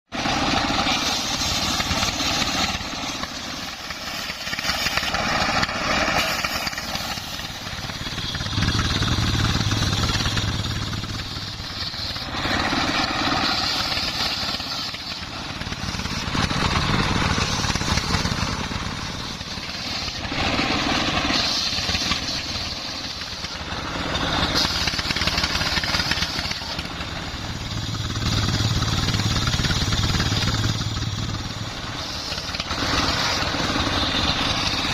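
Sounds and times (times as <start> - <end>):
diesel engine running: 0.1 - 34.9
saw blade cutting wood: 0.2 - 27.1.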